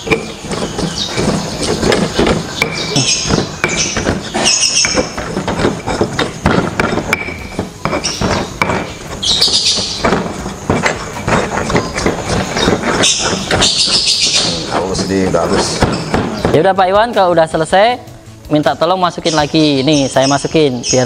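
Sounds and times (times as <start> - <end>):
pestle knocking in a mortar: 0.0 - 17.3.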